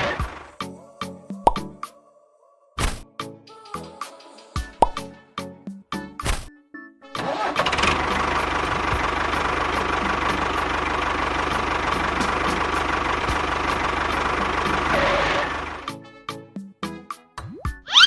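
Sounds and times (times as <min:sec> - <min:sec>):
engine starting and running: 0:00.0 - 0:00.5, 0:07.2 - 0:15.9
light music with plopping notes: 0:01.4 - 0:01.8, 0:04.6 - 0:05.2, 0:17.2 - 0:18.0.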